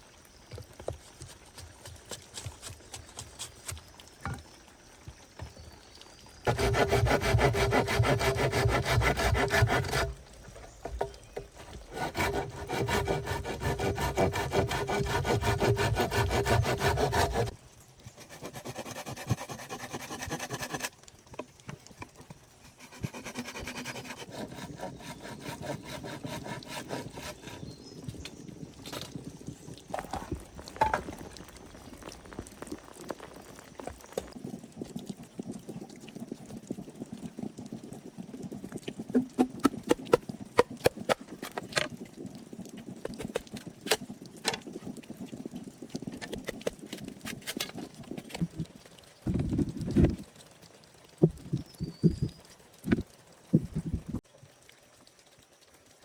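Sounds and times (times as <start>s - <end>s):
hand tools rubbing wood: 6.5s - 10.1s, 11.6s - 17.5s, 18.1s - 20.9s, 22.6s - 27.7s
sawing-like scraping: 6.5s - 10.2s, 10.8s - 20.9s, 22.6s - 27.8s.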